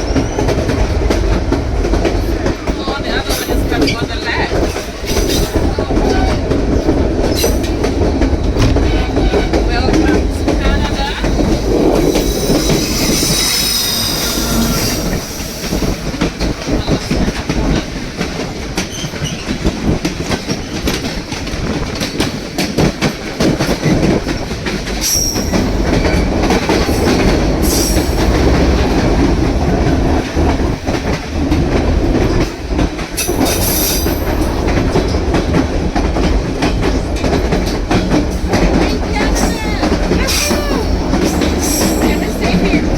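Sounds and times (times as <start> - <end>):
train rumbling over rail joints: 0.0 - 42.9
high-pitched wheel squeals: 12.2 - 15.6.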